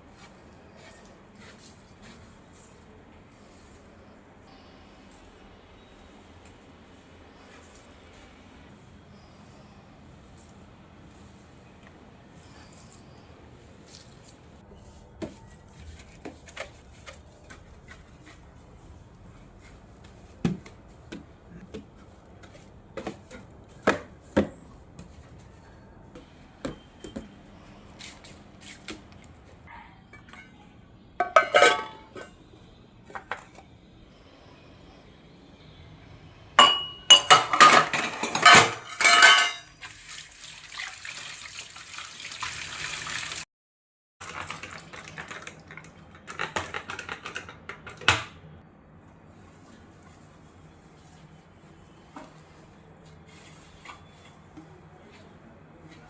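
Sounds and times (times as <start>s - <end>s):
dishes and utensils clattering: 31.2s - 32.4s, 36.6s - 39.8s
water running: 39.2s - 43.4s.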